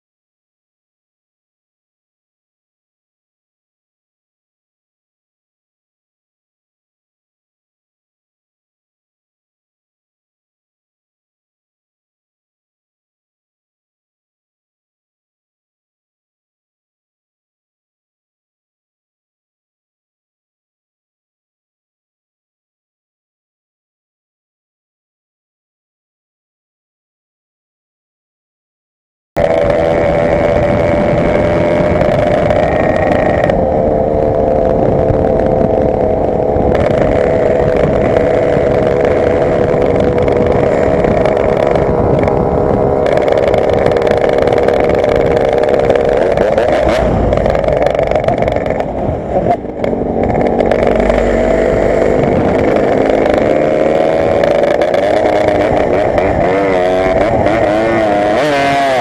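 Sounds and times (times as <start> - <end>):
two-stroke motorcycle engine revving: 29.4 - 59.0.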